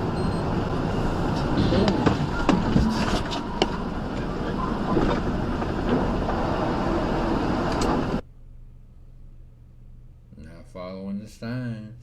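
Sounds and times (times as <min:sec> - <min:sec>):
vehicle road and engine noise: 0:00.0 - 0:08.2.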